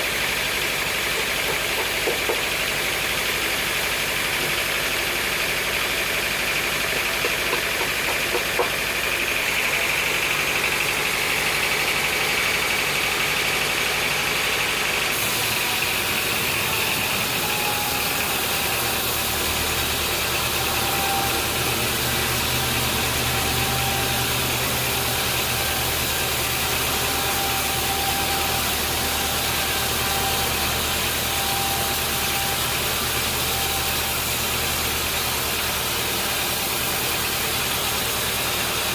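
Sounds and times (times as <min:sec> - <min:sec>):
low steady engine: 0:00.0 - 0:38.9
sawmill motor drone: 0:00.0 - 0:38.9
high machine whine: 0:08.2 - 0:38.9.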